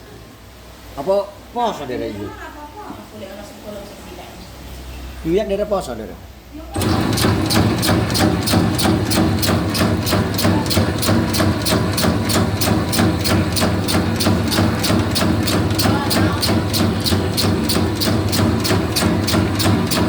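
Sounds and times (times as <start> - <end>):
fast even clacking: 6.8 - 20.0
machine motor hum: 6.8 - 20.0.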